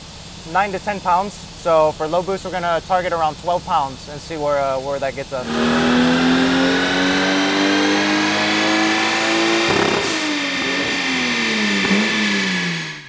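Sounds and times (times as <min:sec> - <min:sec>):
car engine revving: 0:05.0 - 0:13.0
turbo rushing burst: 0:05.4 - 0:13.0.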